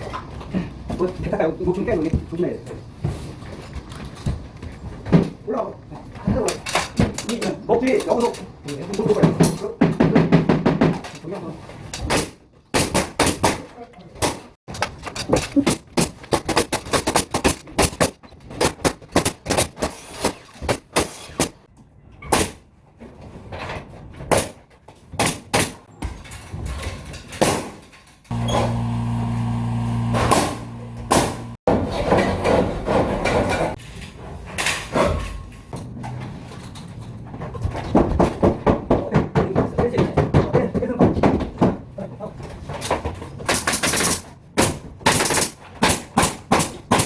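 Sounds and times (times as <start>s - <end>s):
machine hum: 28.3s - 31.6s
nail gun firing: 30.1s - 31.6s, 43.5s - 47.0s.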